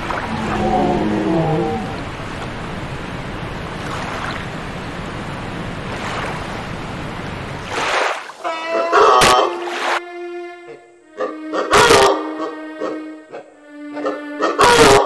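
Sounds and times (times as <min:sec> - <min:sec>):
short pitched sounds: 0:00.0 - 0:02.7
rushing surf-like noise: 0:00.0 - 0:08.5.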